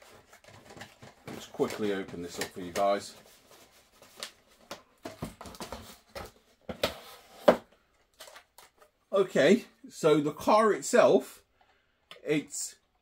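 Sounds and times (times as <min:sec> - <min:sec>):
packaging rustling: 0:00.0 - 0:06.5, 0:08.0 - 0:08.9.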